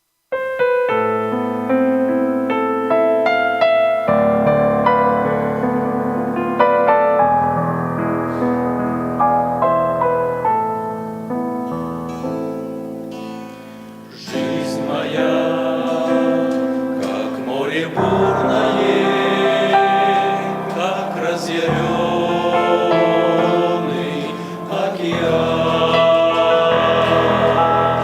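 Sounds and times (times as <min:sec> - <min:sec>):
keyboard notes: 0:00.4 - 0:28.0
choir singing a hymn with ensemble: 0:04.1 - 0:11.1, 0:13.7 - 0:28.0.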